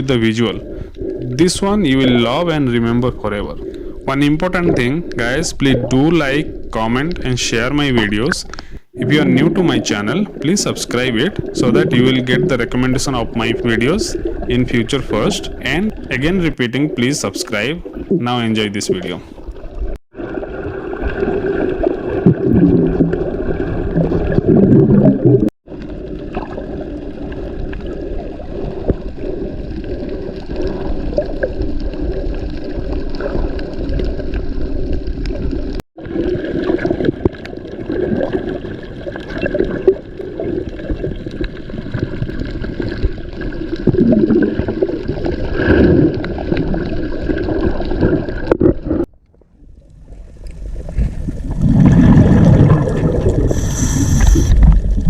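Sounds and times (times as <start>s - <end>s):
muffled underwater gurgling and bubbling: 0.0s - 19.4s, 51.4s - 55.0s.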